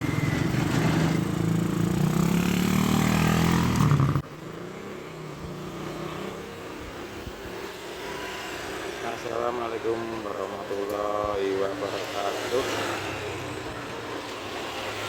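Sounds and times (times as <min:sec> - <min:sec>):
engine revving: 0:00.0 - 0:10.4, 0:11.5 - 0:15.0
background road traffic: 0:00.0 - 0:15.0.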